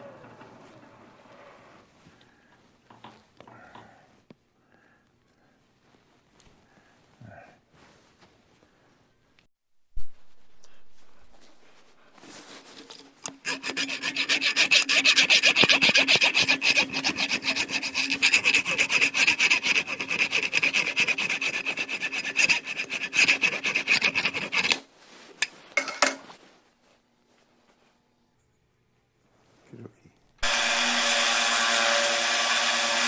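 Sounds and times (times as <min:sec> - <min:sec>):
tool scraping metal: 0:12.4 - 0:26.3, 0:30.4 - 0:33.0.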